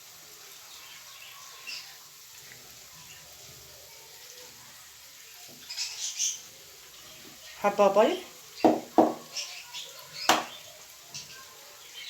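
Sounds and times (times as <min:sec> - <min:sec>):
clicks and taps of mixing bowl: 0:08.7 - 0:09.3, 0:10.3 - 0:10.6.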